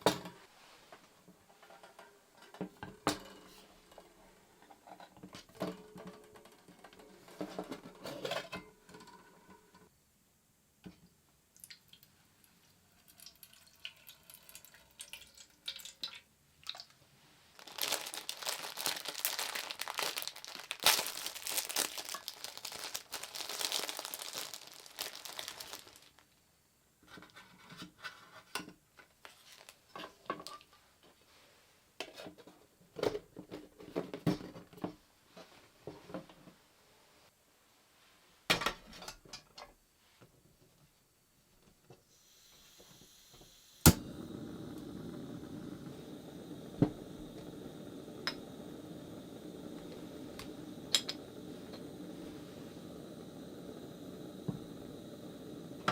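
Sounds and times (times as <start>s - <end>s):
wrapping crinkling: 17.5s - 26.3s, 29.2s - 29.8s.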